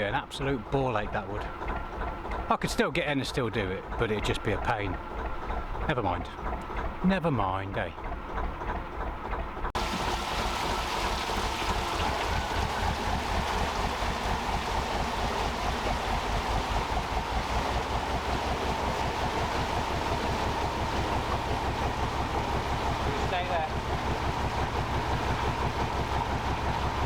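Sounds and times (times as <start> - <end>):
diesel boat engine running: 0.0 - 27.0.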